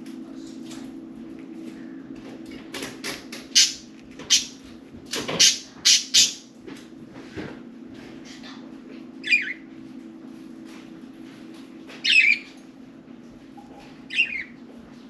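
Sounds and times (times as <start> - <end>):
steady low hum: 0.0 - 15.0
budgerigar squawks: 3.6 - 4.5, 5.4 - 6.4.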